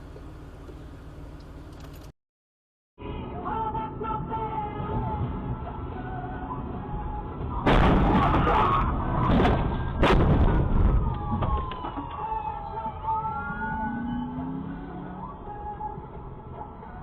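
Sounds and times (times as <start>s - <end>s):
loud bangs: 7.6s - 11.8s.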